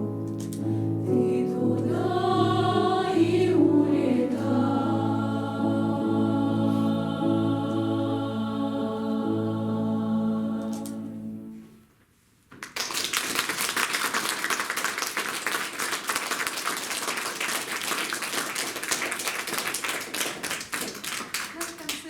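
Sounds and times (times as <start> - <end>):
women's choir singing chord: 0.8 - 11.6
audience applauding: 12.6 - 22.0.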